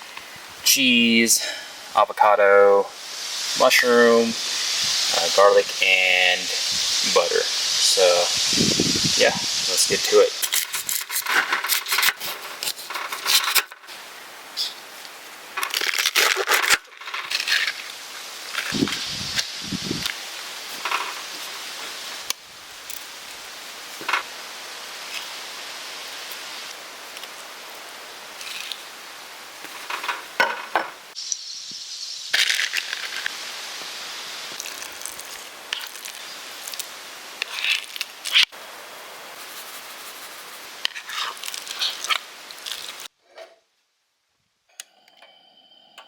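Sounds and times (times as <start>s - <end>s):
steady hiss: 0.0s - 43.2s
rustles and clicks of food handling: 10.3s - 24.4s, 25.0s - 29.0s, 29.6s - 30.8s, 32.3s - 38.5s, 39.4s - 43.1s.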